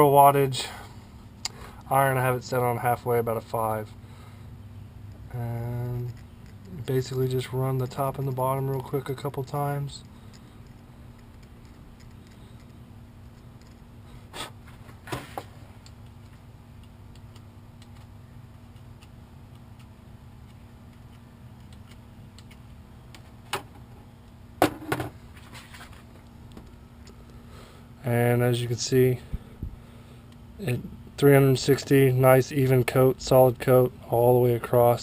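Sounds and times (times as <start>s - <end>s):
steady low hum: 0.0s - 35.0s
clicks and taps of wires handled: 15.0s - 18.1s, 25.9s - 27.4s.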